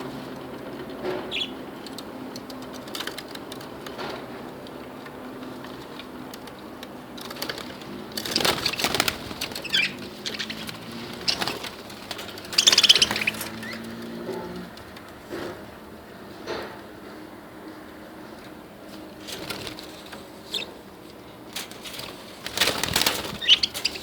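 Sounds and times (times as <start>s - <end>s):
budgerigars chirping: 1.3s - 1.6s, 8.2s - 14.0s, 23.1s - 24.0s
wings fluttering: 7.2s - 15.6s, 18.9s - 24.0s.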